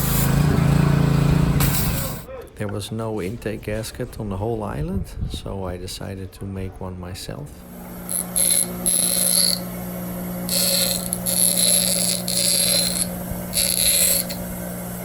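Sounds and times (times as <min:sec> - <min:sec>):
high-pitched grinding bursts: 0:07.6 - 0:15.0
small power tool running: 0:07.6 - 0:15.0.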